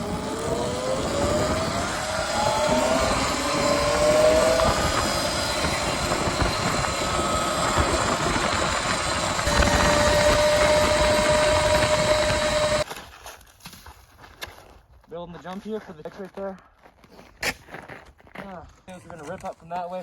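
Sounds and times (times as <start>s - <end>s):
dirt bike engine running: 0.0s - 12.8s
steady rushing noise: 0.0s - 12.8s.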